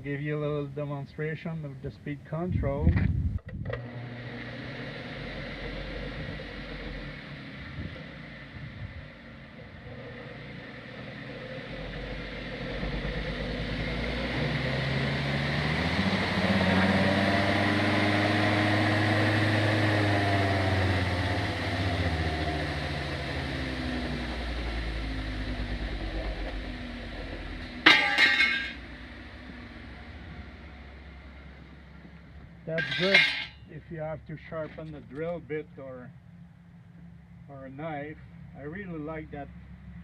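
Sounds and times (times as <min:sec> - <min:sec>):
belt sander motor whine: 0:03.7 - 0:32.6.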